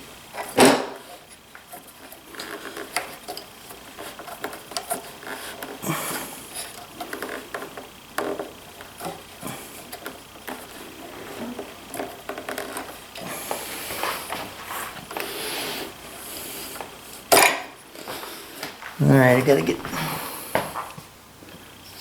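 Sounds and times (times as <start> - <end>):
scraping and rubbing: 0.4 - 16.0
clicks and knocks of handled parts: 1.6 - 5.8.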